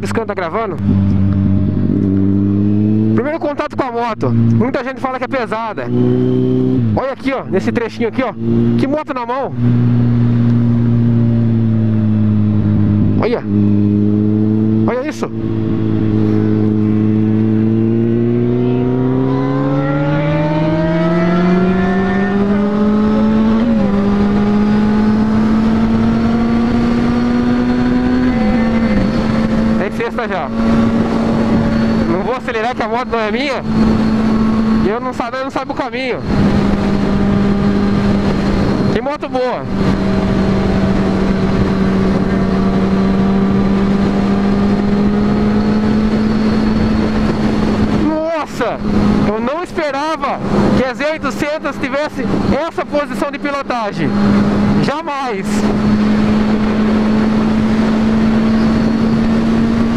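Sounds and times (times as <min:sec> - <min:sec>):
motorcycle engine revving: 0:00.0 - 0:59.9
wind on microphone: 0:00.8 - 0:03.2, 0:09.6 - 0:34.8, 0:36.2 - 0:39.0, 0:39.6 - 0:49.4, 0:50.3 - 0:51.0, 0:54.0 - 0:54.8, 0:55.6 - 0:59.9.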